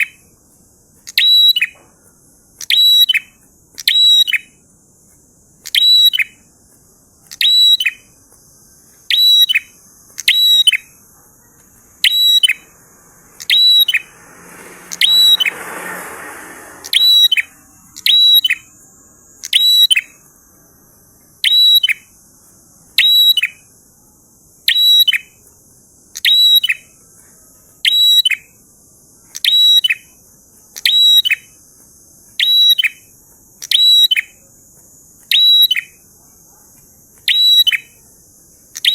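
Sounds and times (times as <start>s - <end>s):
bird sharp high call: 0.0s - 0.3s, 1.1s - 2.0s, 2.6s - 4.6s, 7.3s - 8.2s, 9.1s - 12.8s, 13.4s - 20.3s, 21.4s - 22.2s, 32.4s - 34.4s
brief whooshing noise: 12.8s - 18.0s.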